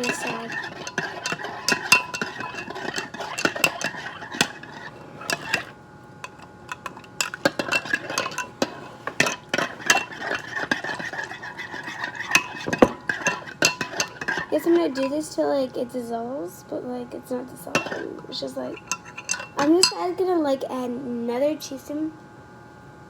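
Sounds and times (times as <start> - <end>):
spoon clinking in a cup: 0.0 - 15.2, 17.8 - 18.1, 18.8 - 20.1.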